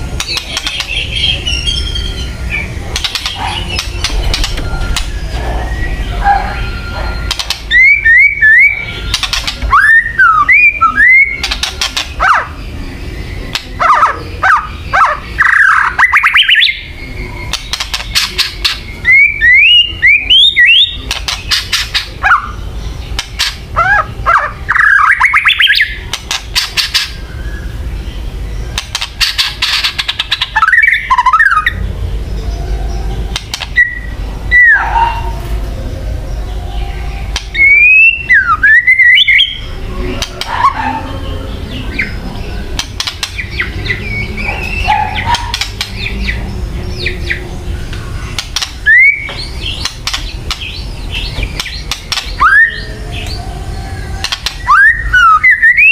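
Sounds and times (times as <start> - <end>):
bird whistling sharp notes: 0.2 - 12.6, 37.5 - 39.7, 48.8 - 49.8, 54.4 - 55.9
bird crackling rattles: 9.1 - 9.7, 42.8 - 43.4.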